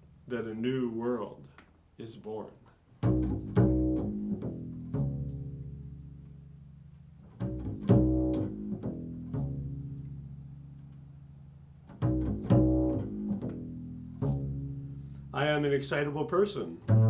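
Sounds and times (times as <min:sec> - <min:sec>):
low plucked string notes: 0:03.0 - 0:15.9, 0:16.8 - 0:17.0.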